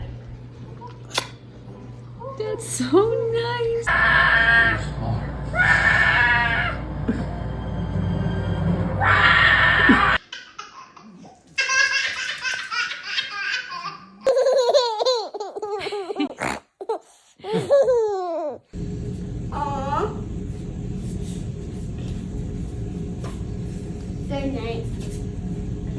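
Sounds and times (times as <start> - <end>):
baby laughing and giggling: 10.2 - 18.8.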